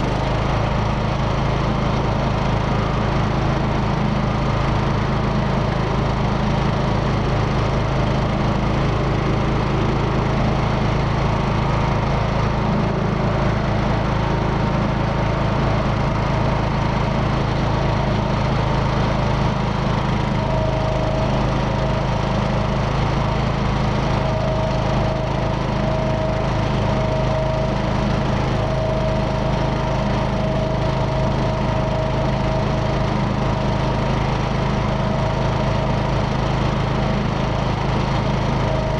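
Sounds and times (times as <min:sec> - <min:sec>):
riding mower engine running: 0:00.0 - 0:38.9
blades cutting grass: 0:07.3 - 0:38.9
faint steady whine: 0:19.1 - 0:36.0.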